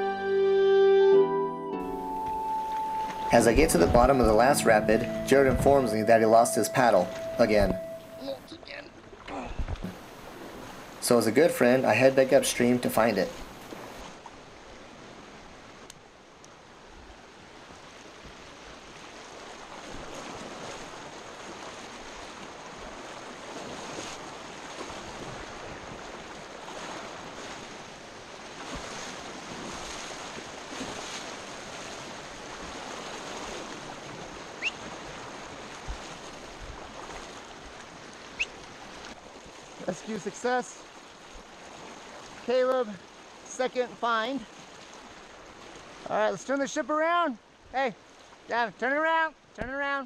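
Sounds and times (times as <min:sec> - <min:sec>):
high chirps: 0:01.5 - 0:08.5
river water rushing: 0:01.8 - 0:09.2, 0:09.8 - 0:46.6.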